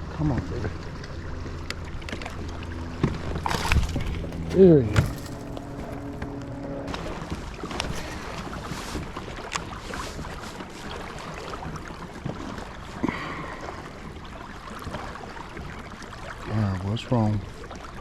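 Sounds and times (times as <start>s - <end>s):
water around a kayak: 0.0s - 18.0s
wind: 0.0s - 18.0s.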